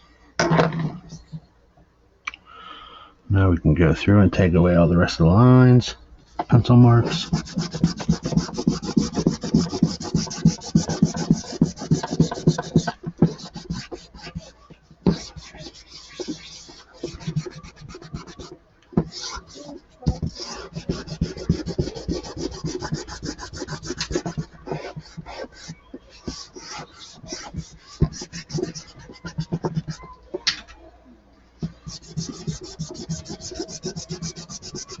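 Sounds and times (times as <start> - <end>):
eraser rubbing on paper: 7.0 - 30.1, 31.7 - 35.0.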